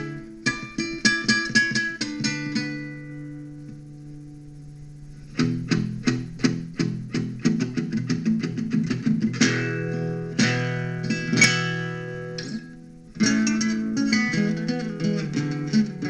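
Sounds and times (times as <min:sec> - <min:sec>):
guitar picked notes: 0:00.0 - 0:16.0
strummed guitar chords: 0:00.0 - 0:16.0.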